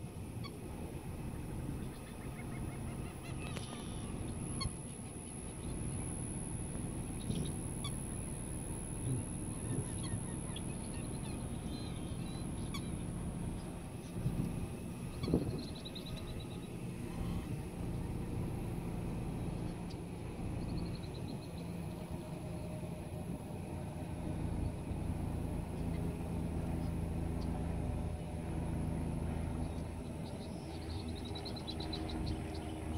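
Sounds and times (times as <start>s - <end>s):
car engine idling: 0.0s - 32.9s
rapid bird call trills: 1.3s - 18.0s, 29.6s - 32.9s.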